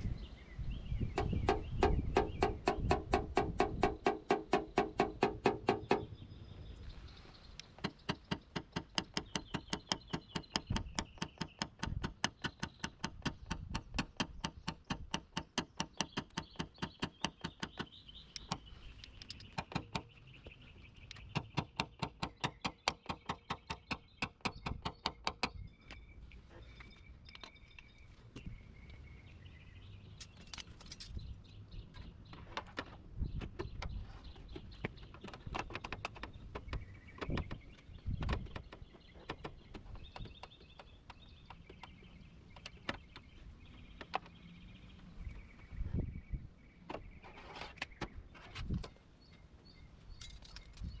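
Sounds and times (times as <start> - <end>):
tool tapping on car panel: 1.2 - 6.1.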